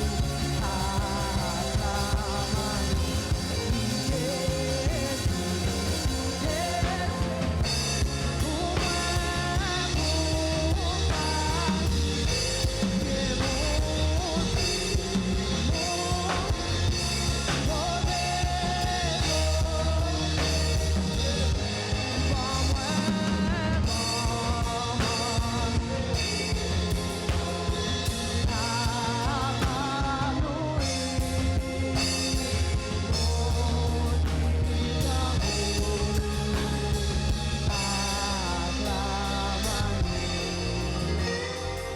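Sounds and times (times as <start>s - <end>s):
person singing: 0.0s - 41.9s
worship band playing: 0.0s - 41.9s.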